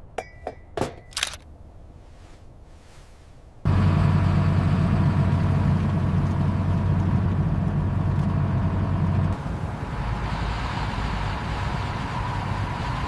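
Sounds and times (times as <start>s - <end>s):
diesel truck engine humming: 3.7s - 13.0s.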